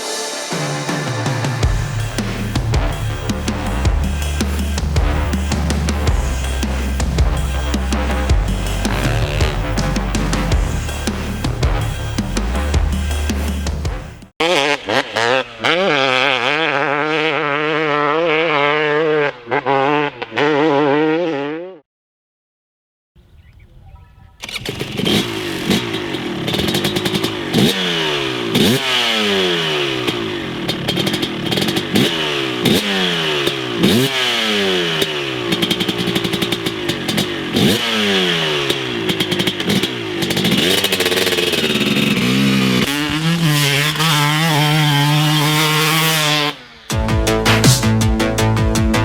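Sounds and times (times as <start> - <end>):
music: 0.0 - 14.3, 46.9 - 49.0
dirt bike engine revving: 1.0 - 21.8, 24.4 - 49.0.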